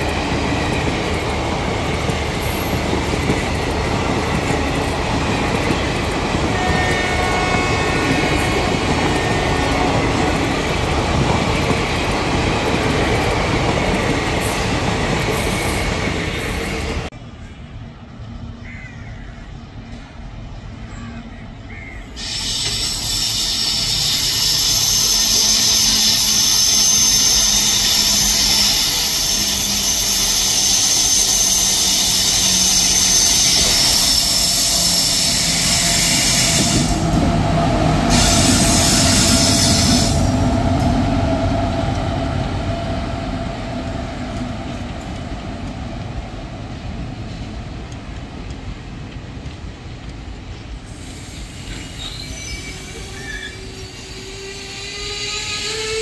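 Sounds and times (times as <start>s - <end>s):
train rumbling past: 0.0s - 56.0s
train wheels squealing on curve: 22.0s - 41.2s, 50.8s - 56.0s.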